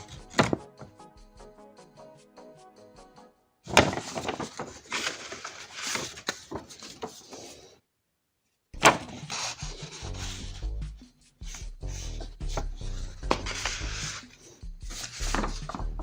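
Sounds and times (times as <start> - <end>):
rubbing and scraping: 3.7 - 7.8, 8.8 - 16.0.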